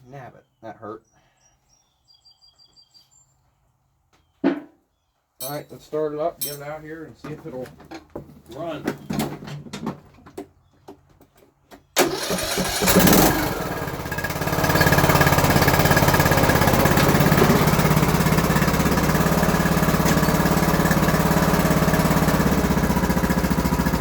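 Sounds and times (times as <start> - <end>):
lawn tractor engine starting and running: 12.0 - 24.0.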